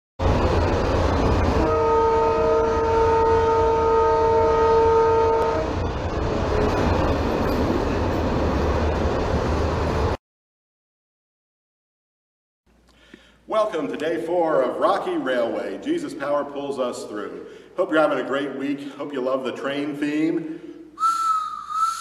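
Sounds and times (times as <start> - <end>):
rumble and clatter of moving train: 0.2 - 10.2
train horn chord: 1.4 - 5.9.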